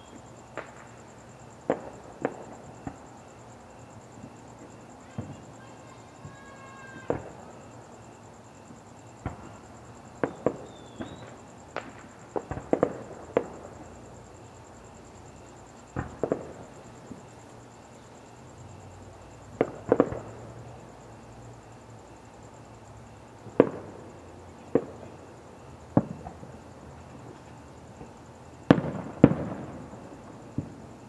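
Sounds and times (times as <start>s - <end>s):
fireworks bangs with echo: 0.0s - 3.2s, 4.2s - 7.8s, 8.7s - 14.0s, 15.8s - 17.3s, 19.5s - 20.7s, 23.4s - 25.2s, 25.9s - 27.3s, 27.9s - 31.0s.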